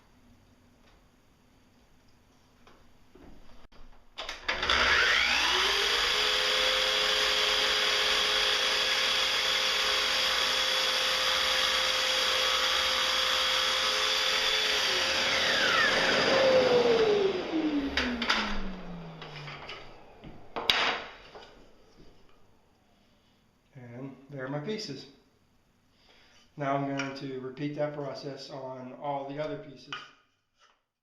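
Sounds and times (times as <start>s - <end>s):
miter saw cutting wood: 4.4s - 21.5s.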